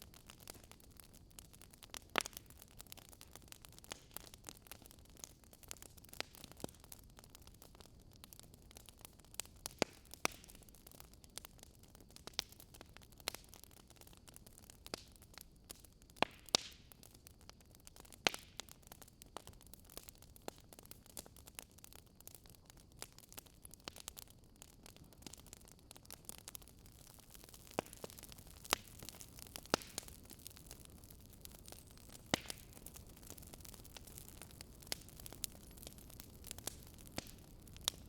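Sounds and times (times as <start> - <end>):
faint steady hiss: 0.0 - 38.0
wood fire crackling and popping: 0.0 - 38.0.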